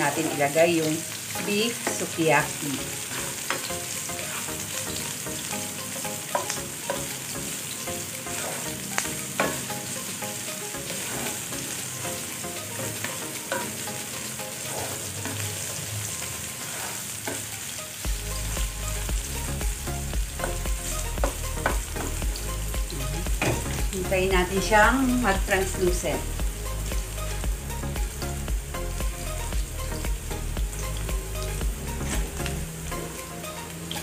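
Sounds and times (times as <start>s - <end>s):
onion sizzling in hot oil: 0.0s - 34.0s
spatula scraping and tapping pan: 3.1s - 4.5s, 6.2s - 7.2s, 8.3s - 9.8s, 10.7s - 11.8s, 20.4s - 22.2s.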